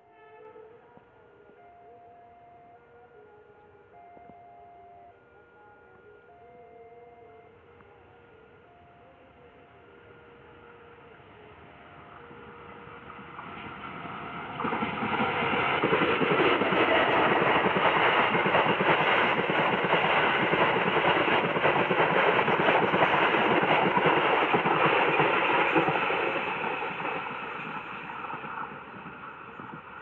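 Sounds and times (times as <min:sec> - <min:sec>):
train passing: 0:09.1 - 0:30.0.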